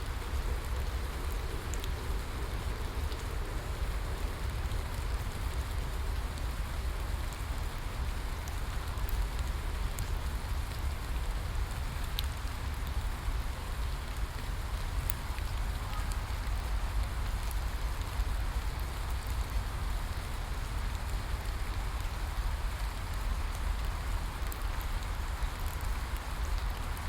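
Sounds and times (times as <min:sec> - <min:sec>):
rain hissing: 0:00.0 - 0:27.0.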